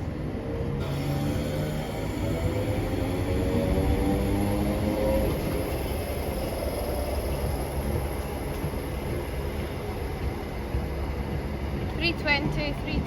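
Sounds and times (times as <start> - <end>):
electric train rumbling past: 0.0 - 13.0.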